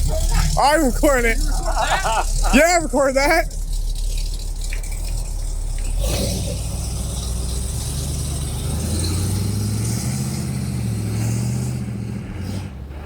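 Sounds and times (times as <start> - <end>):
monster truck engine revving: 0.0 - 13.0.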